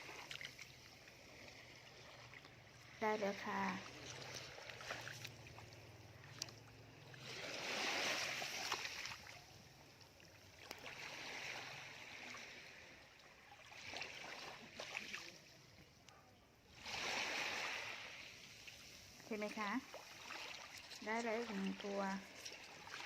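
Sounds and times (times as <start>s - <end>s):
surf washing over wet sand: 7.2s - 9.2s, 16.8s - 23.0s.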